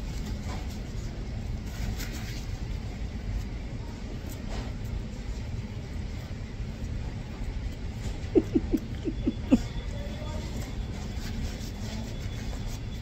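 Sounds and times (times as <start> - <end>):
low background rumble: 7.9 - 9.6
squeaky mouth sounds: 8.2 - 9.7
person eating: 8.3 - 9.6.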